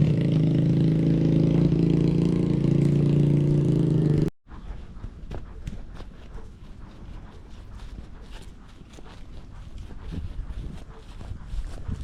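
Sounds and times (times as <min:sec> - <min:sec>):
dirt bike engine running: 0:00.0 - 0:04.3.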